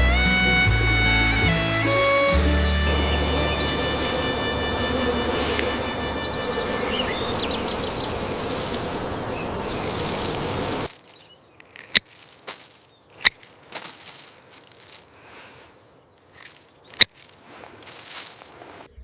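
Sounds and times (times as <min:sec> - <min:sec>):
insects buzzing: 0:01.0 - 0:11.3.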